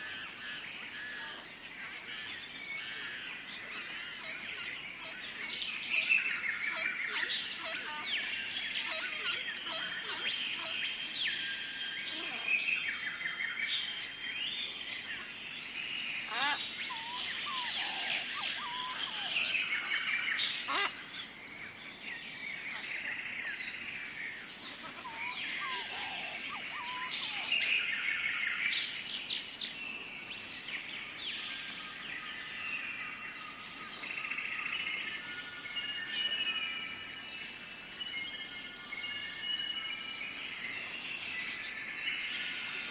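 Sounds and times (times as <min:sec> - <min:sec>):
birds chirping and trilling: 0:00.0 - 0:42.9.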